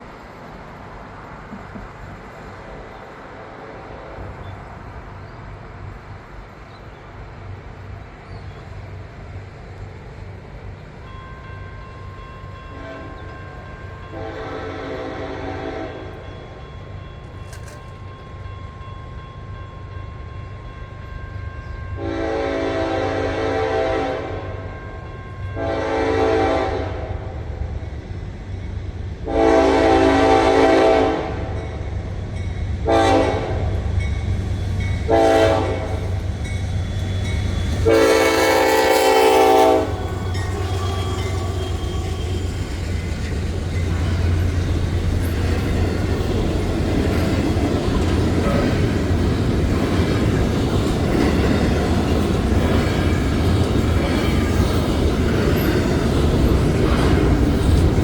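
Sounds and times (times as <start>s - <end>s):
train wheels rumbling on rails: 0.0s - 58.0s
locomotive horn blasts: 12.7s - 13.3s, 14.1s - 16.2s, 22.0s - 24.7s, 25.6s - 27.3s, 29.2s - 31.6s, 32.8s - 33.8s, 35.1s - 36.2s, 37.7s - 42.6s.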